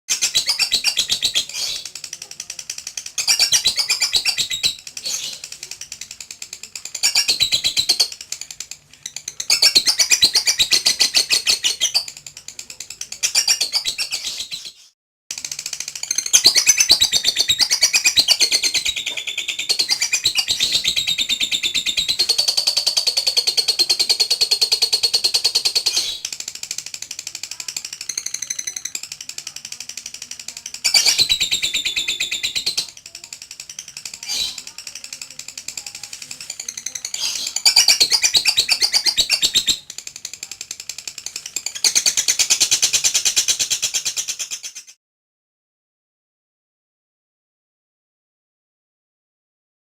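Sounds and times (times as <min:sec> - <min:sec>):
lovebird chattering trills: 0:00.1 - 0:45.0.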